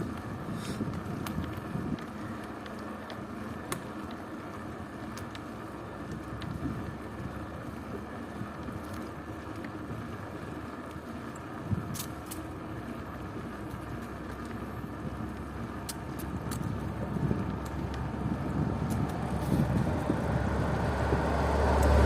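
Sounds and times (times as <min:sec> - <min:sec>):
bicycle tyres rolling: 0:00.0 - 0:22.0
wind on microphone: 0:16.7 - 0:22.0.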